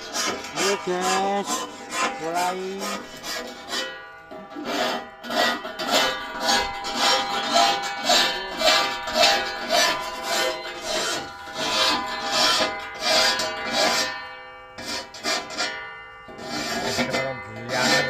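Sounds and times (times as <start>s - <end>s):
file rasping on saw teeth: 0.0s - 14.2s, 14.8s - 18.0s.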